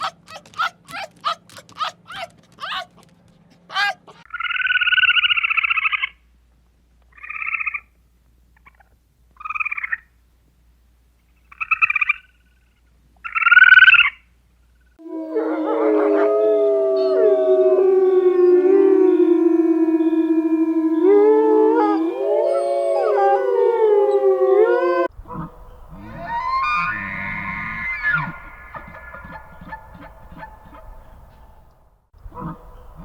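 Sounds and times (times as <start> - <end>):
animals calling in gliding notes: 15.0 - 31.7
rasping pulsed animal calls: 15.0 - 31.7.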